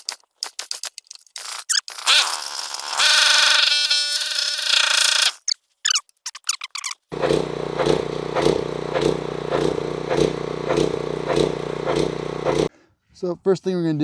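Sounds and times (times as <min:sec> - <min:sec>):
pressure washer engine running: 0:07.1 - 0:12.7.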